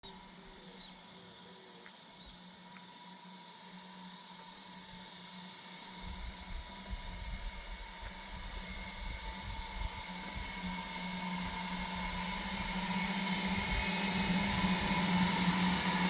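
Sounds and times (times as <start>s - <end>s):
cooling fans whooshing: 5.9s - 16.0s.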